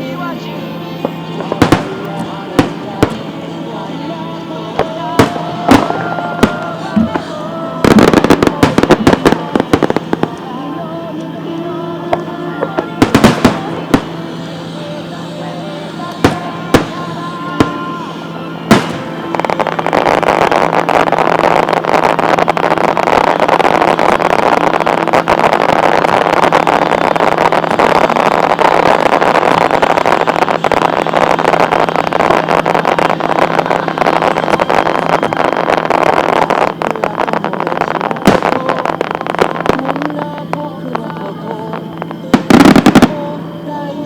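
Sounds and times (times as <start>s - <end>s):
fireworks crackling: 0.0s - 44.0s
firework bang: 1.4s - 3.3s, 12.2s - 43.3s.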